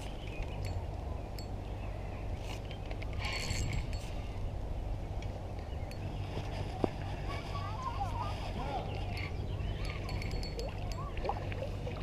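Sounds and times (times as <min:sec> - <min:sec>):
fishing reel rattling: 0:02.4 - 0:04.3, 0:09.1 - 0:11.1.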